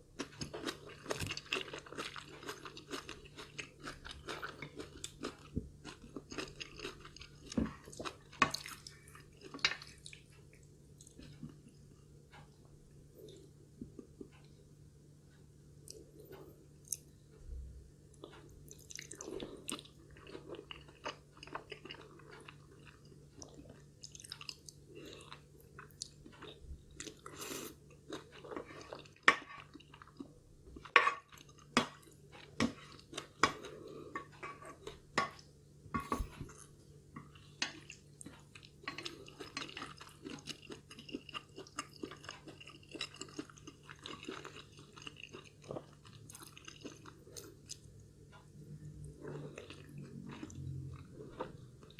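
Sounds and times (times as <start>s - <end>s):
wet mouth chewing sounds: 48.8s - 51.9s.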